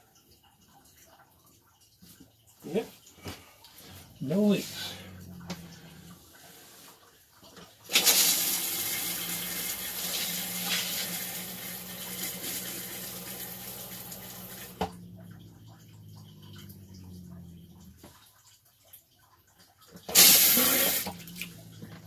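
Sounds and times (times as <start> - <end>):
low hum: 4.0 - 6.3, 12.9 - 18.1, 21.1 - 22.0
toilet flush water rushing: 7.8 - 18.0, 20.1 - 22.0.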